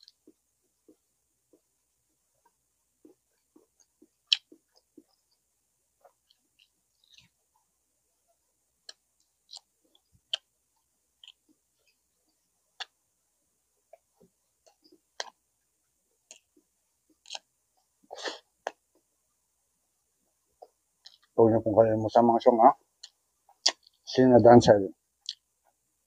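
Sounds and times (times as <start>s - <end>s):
person chewing: 2.4s - 7.5s, 8.8s - 10.6s, 11.2s - 12.0s, 12.7s - 13.0s, 13.9s - 15.4s, 16.2s - 19.1s, 20.6s - 21.4s, 23.0s - 24.1s, 25.2s - 25.5s
wet mouth clicks and smacks: 3.0s - 5.3s, 8.8s - 10.5s, 12.8s - 13.0s, 13.9s - 15.4s, 16.3s - 17.5s, 20.6s - 21.3s, 23.0s - 24.0s, 25.2s - 25.5s.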